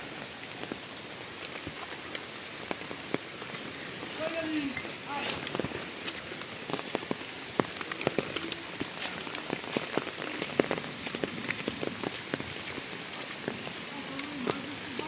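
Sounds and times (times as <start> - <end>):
raindrops tapping close by: 0.0 - 15.0
steady rain hiss: 0.0 - 15.0.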